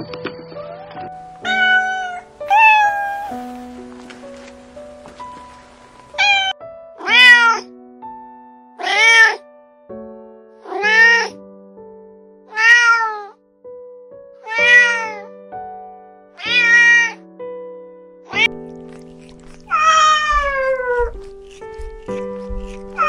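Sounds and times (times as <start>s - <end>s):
cat meowing: 1.4s - 3.7s, 6.1s - 7.7s, 8.8s - 9.4s, 10.6s - 11.4s, 12.5s - 13.4s, 14.4s - 15.3s, 16.4s - 17.2s, 18.3s - 23.0s.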